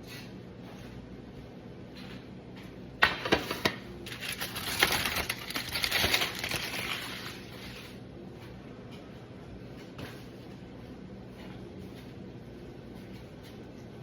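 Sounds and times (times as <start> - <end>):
crinkly material rustling: 4.1 - 8.0.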